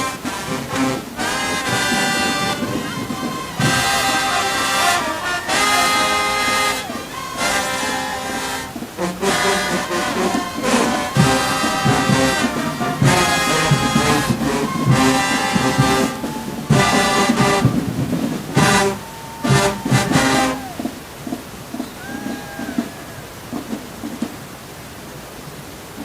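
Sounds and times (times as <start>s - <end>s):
brass chords in punchy blasts: 0.0s - 20.6s
drum hits: 0.1s - 24.4s.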